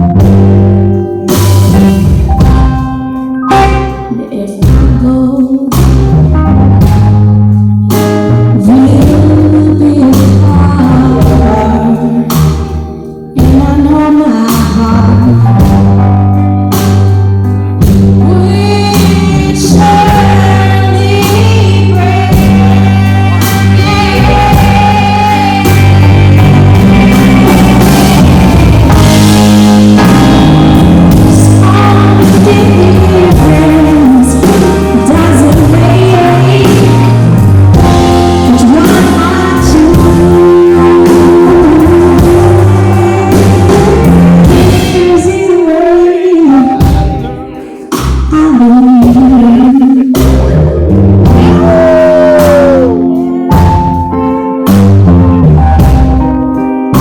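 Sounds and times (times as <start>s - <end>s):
rock band playing live: 0.0s - 57.0s
lead singer singing: 3.4s - 6.0s, 8.6s - 15.7s, 18.2s - 50.6s, 51.2s - 54.3s.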